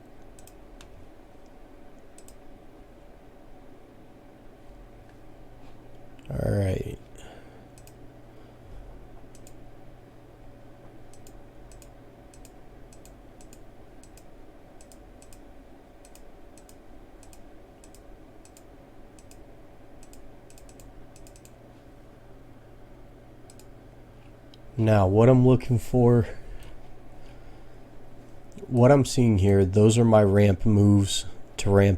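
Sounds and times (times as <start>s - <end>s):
faint steady hum: 0.0s - 31.9s
computer mouse clicking: 0.2s - 2.4s, 7.7s - 8.0s, 9.3s - 9.6s, 11.1s - 15.4s, 16.0s - 19.4s, 20.0s - 21.6s, 23.5s - 23.7s.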